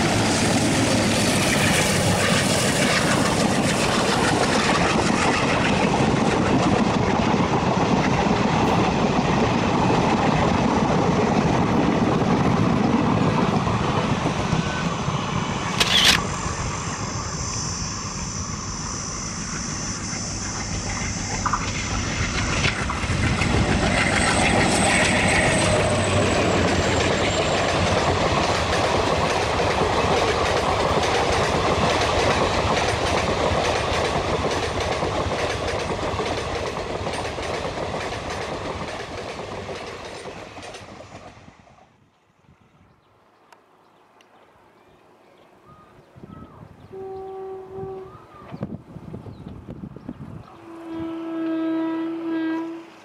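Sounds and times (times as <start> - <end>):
train wheels rumbling on rails: 0.0 - 42.3.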